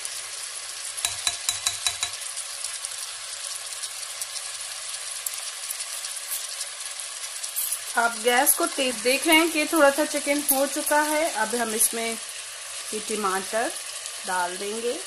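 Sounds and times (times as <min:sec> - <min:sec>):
food sizzling in hot oil: 0:00.0 - 0:15.0
spatula knocking and scraping pot: 0:01.0 - 0:02.2.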